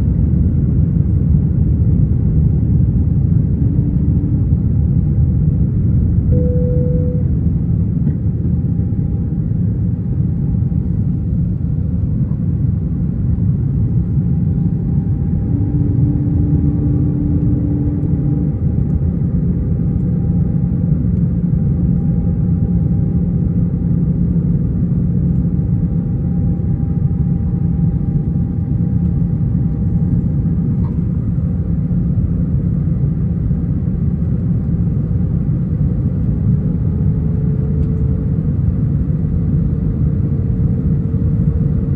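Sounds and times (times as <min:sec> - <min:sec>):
aircraft cabin engine rumble: 0:00.0 - 0:41.9
short low hum: 0:06.3 - 0:07.6
faint steady whine: 0:06.3 - 0:08.2.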